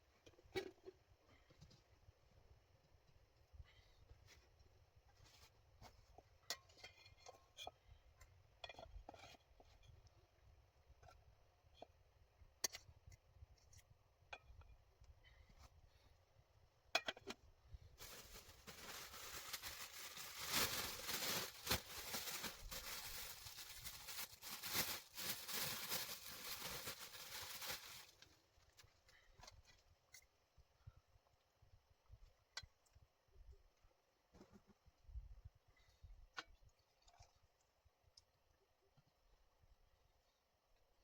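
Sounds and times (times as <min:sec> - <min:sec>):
crackling and rustling: 0:18.0 - 0:30.3.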